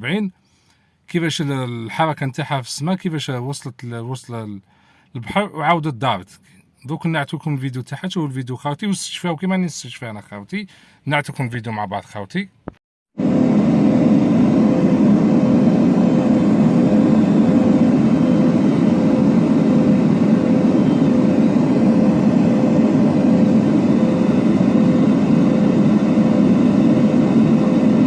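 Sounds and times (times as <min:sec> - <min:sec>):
engine drone: 0:13.2 - 0:28.0.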